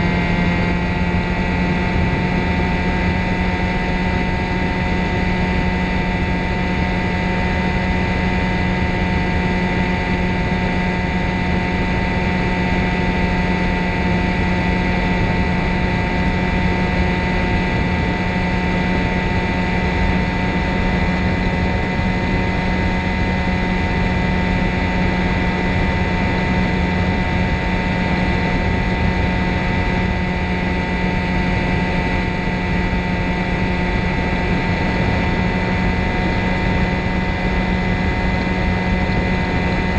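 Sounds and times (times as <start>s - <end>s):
ultralight engine and propeller droning: 0.0s - 39.9s.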